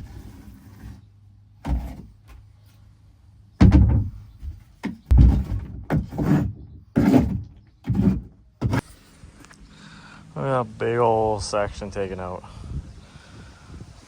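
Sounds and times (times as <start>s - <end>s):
heavy thumps pounding wood: 3.6s - 8.8s.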